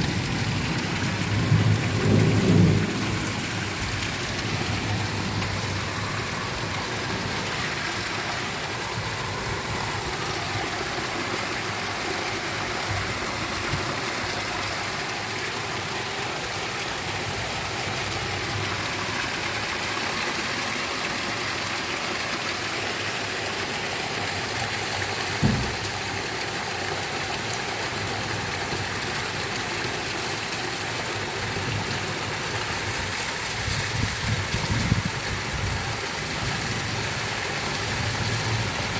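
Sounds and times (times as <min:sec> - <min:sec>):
steady rain falling: 0:00.0 - 0:38.9
low thump: 0:25.4 - 0:25.9.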